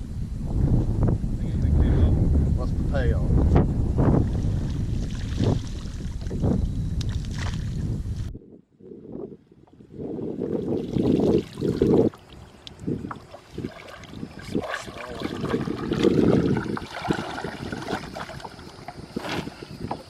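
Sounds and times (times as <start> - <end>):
wind buffeting microphone: 0.0 - 20.0
water splashing and trickling: 4.2 - 6.4, 10.4 - 20.0.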